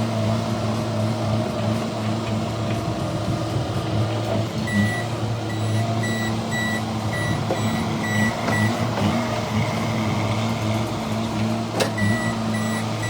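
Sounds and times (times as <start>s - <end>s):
loader engine running: 0.0s - 13.0s
reverse alarm beeping: 4.7s - 9.1s, 12.0s - 13.0s.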